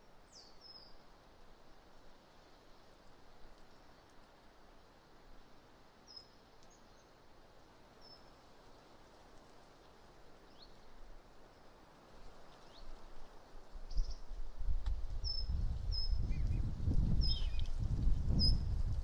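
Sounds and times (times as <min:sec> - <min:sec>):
faint wind noise: 0:00.0 - 0:19.0
small birds chirping: 0:06.1 - 0:07.2, 0:15.2 - 0:18.8.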